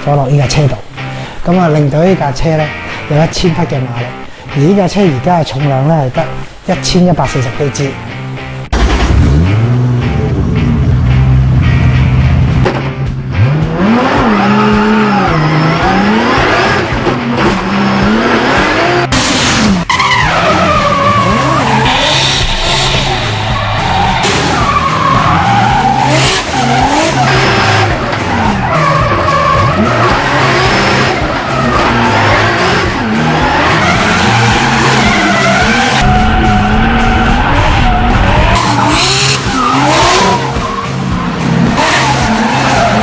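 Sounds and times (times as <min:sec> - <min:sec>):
car engine revving: 0:08.2 - 0:43.0
tyre squeal: 0:18.6 - 0:43.0.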